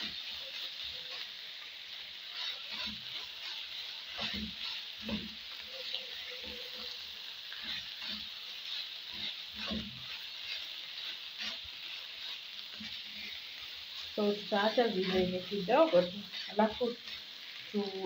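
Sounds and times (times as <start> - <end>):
filling sizzling in a frying pan: 0.0 - 18.0
utensil scraping and knocking pan: 2.4 - 5.4, 7.5 - 13.4.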